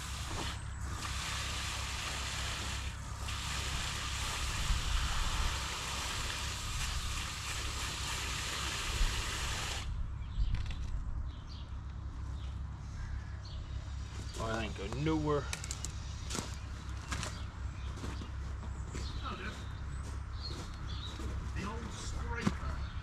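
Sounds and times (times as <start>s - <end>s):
heavy rain hissing: 0.0s - 9.9s.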